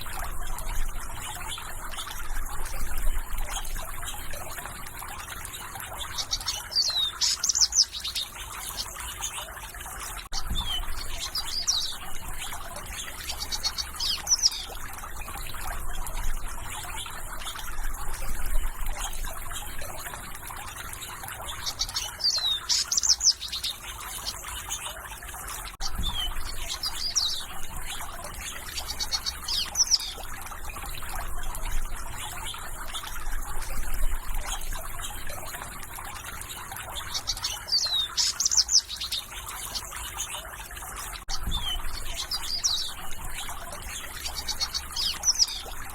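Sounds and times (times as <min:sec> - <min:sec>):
small birds chirping: 0:00.0 - 0:45.9
water trickling: 0:00.0 - 0:45.9.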